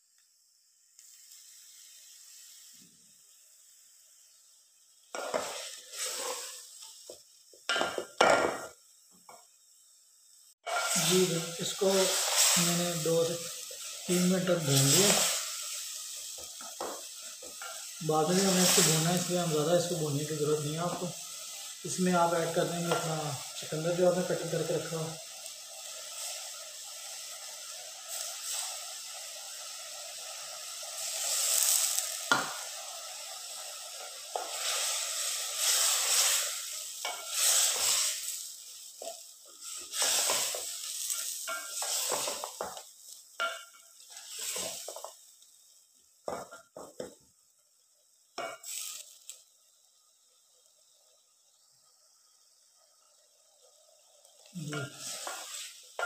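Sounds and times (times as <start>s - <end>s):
meat sizzling in a pot: 0.0s - 56.0s.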